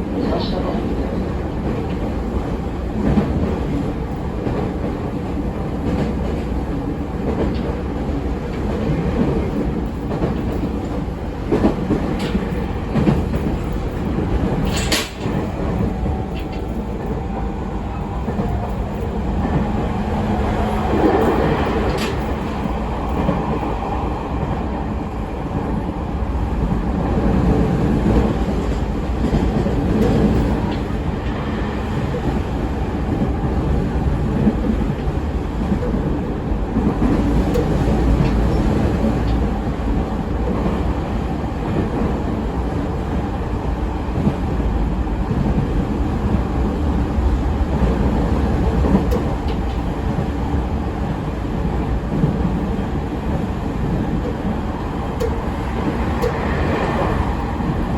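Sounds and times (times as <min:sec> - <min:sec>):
train wheels rumbling on rail: 0:00.0 - 0:57.9.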